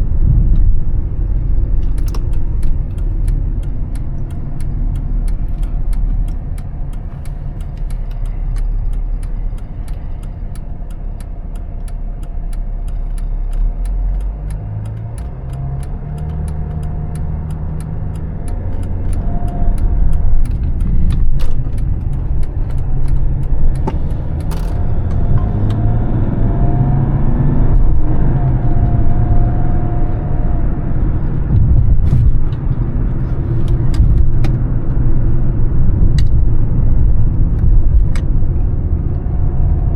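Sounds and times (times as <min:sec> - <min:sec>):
diesel car engine rumbling: 0:00.0 - 0:39.9
faint regular ticks: 0:02.0 - 0:25.8.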